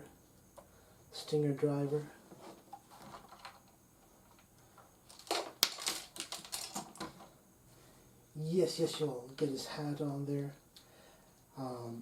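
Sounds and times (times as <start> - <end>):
plastic toy parts clicking: 5.1 - 7.1.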